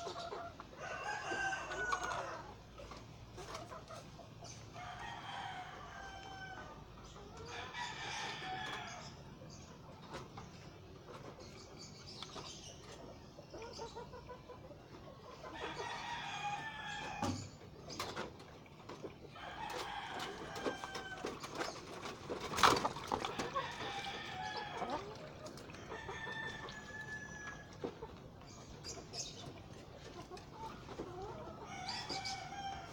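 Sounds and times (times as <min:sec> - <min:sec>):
roosters crowing: 0:00.7 - 0:02.6, 0:04.7 - 0:06.9, 0:07.5 - 0:09.2, 0:15.5 - 0:17.5, 0:19.3 - 0:21.6, 0:22.6 - 0:27.8, 0:31.3 - 0:32.9.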